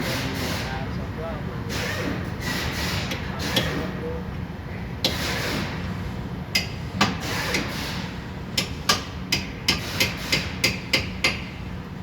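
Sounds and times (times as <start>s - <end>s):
hammer striking chisel: 6.5s - 7.7s, 8.6s - 11.5s.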